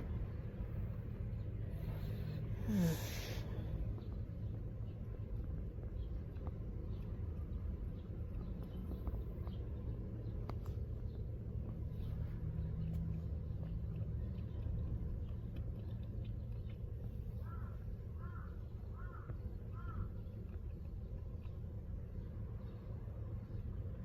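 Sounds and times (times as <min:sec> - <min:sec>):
steady low hum: 0:00.0 - 0:24.0
crow cawing: 0:17.5 - 0:20.1.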